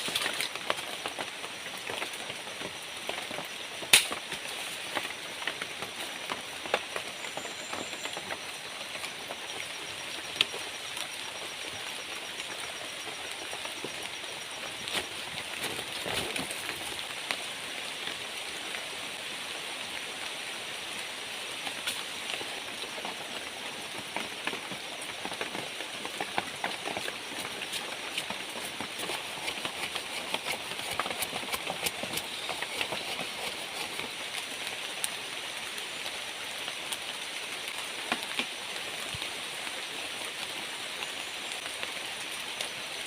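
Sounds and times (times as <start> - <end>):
steady rain falling: 0.0 - 43.0.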